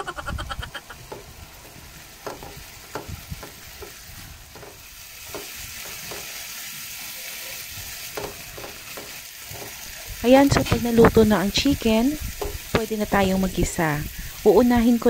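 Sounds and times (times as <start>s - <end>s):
chicken sizzling in oil: 0.2s - 15.0s
spatula scraping pan: 0.8s - 12.9s.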